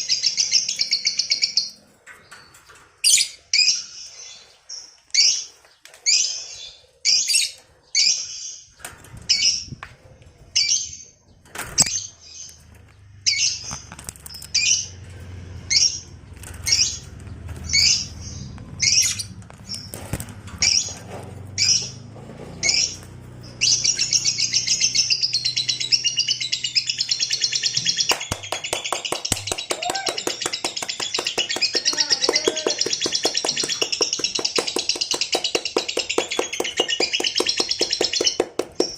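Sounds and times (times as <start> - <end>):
lovebird chirping and chattering: 0.0 - 1.8, 3.0 - 9.7, 13.2 - 14.9, 17.6 - 21.0, 22.6 - 38.9.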